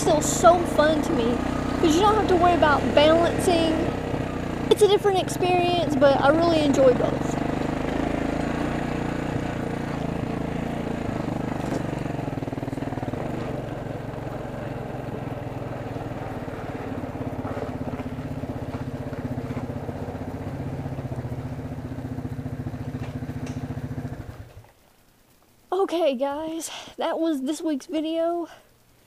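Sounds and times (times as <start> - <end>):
atv engine running: 0.0 - 25.2.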